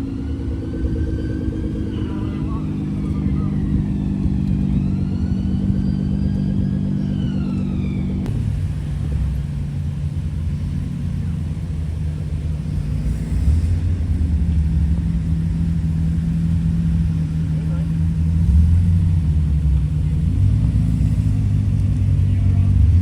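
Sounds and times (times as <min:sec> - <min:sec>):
car engine rumbling: 0:00.0 - 0:23.0.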